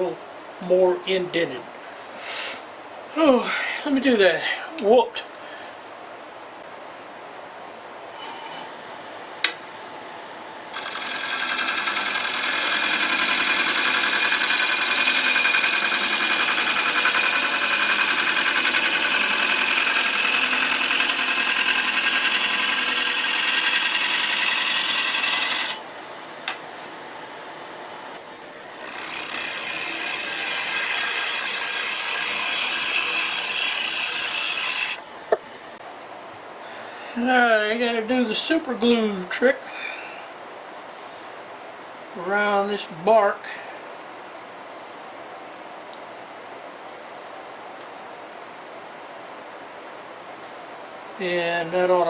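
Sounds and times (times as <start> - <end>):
lathe tool cutting wood: 8.8 - 35.8.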